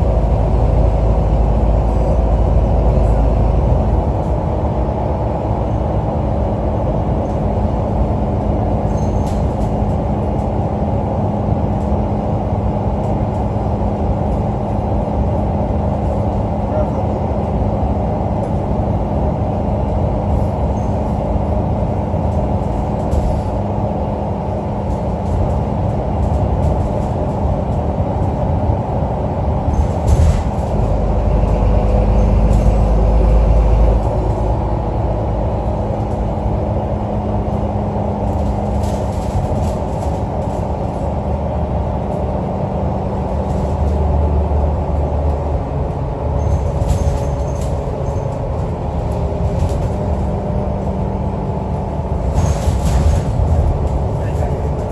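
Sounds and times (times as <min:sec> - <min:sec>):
bus engine droning: 0:00.0 - 0:54.9.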